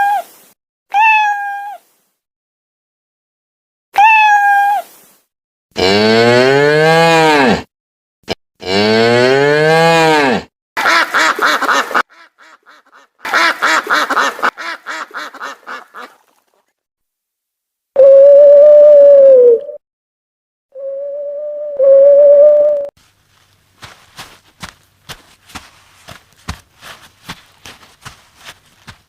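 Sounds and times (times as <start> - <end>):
cat meowing: 0.9 - 1.8, 4.0 - 4.9
ducks quacking: 10.8 - 16.6.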